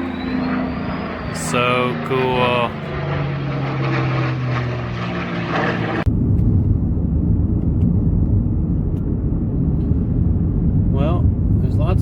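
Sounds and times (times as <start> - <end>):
aircraft engine drone: 0.0 - 10.8
road rumble inside car: 6.0 - 12.0.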